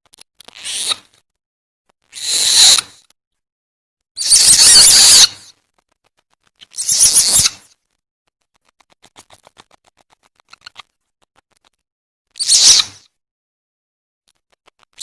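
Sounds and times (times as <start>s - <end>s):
harsh hissing screeches: 4.2s - 5.4s
quick clicking chatters: 4.2s - 11.8s, 14.3s - 15.0s.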